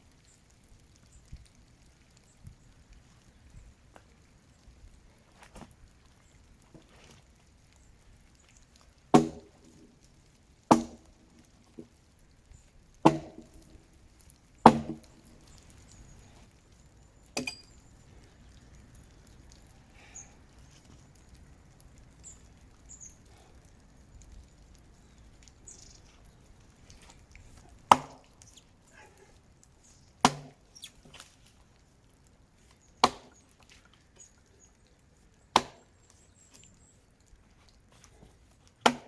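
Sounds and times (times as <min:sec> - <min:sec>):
axe chopping into tree: 0:09.1 - 0:09.6, 0:10.7 - 0:11.2, 0:13.0 - 0:13.6, 0:14.6 - 0:15.1, 0:27.9 - 0:28.3, 0:30.2 - 0:30.6, 0:33.0 - 0:33.4, 0:35.5 - 0:35.9.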